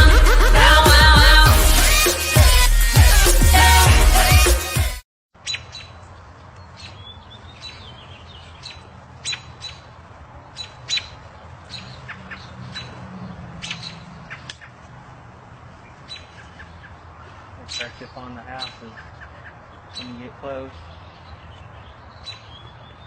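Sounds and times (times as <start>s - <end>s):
bird squawking: 5.4s - 6.0s, 6.8s - 9.9s, 10.5s - 14.8s, 15.9s - 23.0s.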